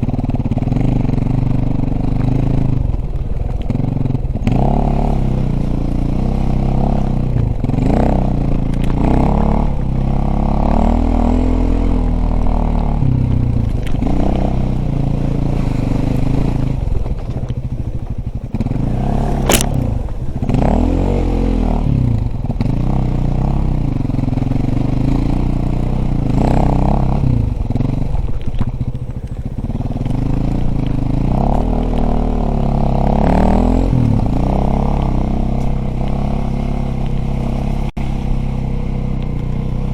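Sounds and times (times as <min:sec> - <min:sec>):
dirt bike engine revving: 0:00.0 - 0:39.9
sharp click: 0:19.4 - 0:20.2.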